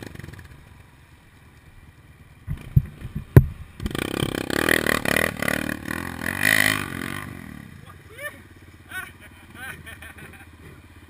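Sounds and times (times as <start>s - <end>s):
dirt bike engine revving: 0.0s - 0.9s, 2.4s - 11.0s
sharp knocks: 2.5s - 4.1s.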